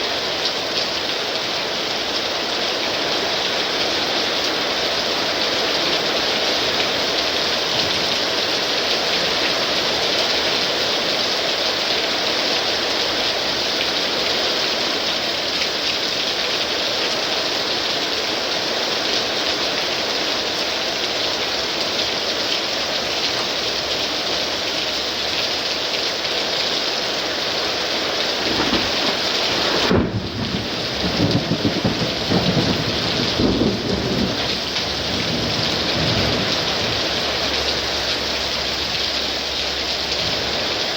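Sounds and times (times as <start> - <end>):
heavy rain hissing: 0.0 - 40.9
thunder rumbling and clapping: 28.4 - 37.6.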